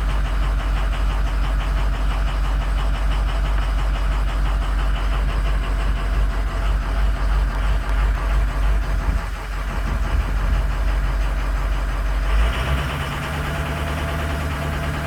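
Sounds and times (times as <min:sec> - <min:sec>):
diesel engine idling with clatter: 0:00.0 - 0:15.0.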